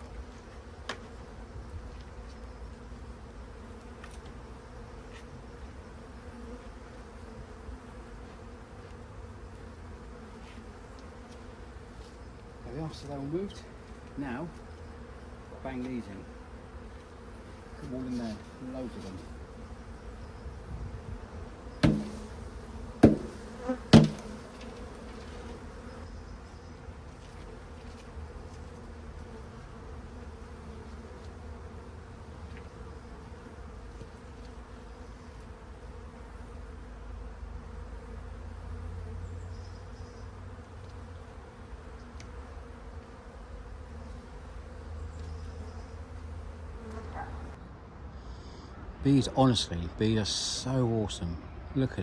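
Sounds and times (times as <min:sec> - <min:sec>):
honeybees buzzing: 0:00.0 - 0:47.6
sharp knocks: 0:21.8 - 0:22.3, 0:23.0 - 0:24.4.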